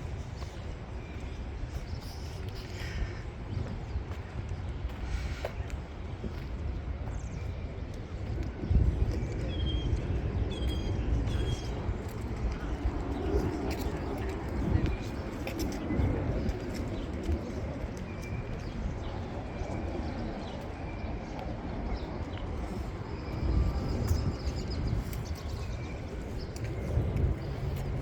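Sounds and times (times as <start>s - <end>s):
low rumble of city traffic: 0.0s - 28.0s.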